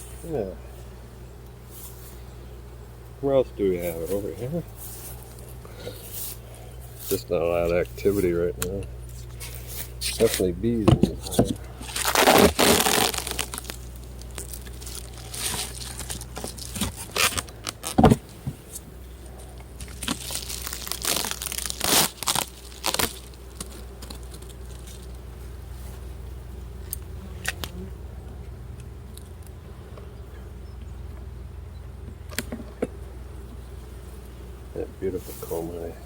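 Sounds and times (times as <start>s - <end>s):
low steady hum: 0.0s - 36.0s
wooden frames cracking and scraping: 8.6s - 25.2s.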